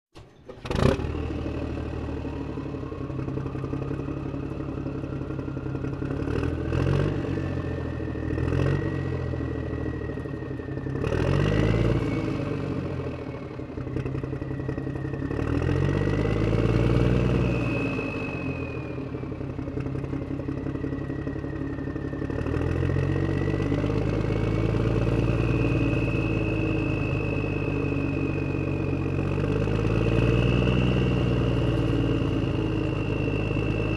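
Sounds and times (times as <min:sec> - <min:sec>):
engine revving: 0:00.4 - 0:33.9
thin whine: 0:07.7 - 0:33.9.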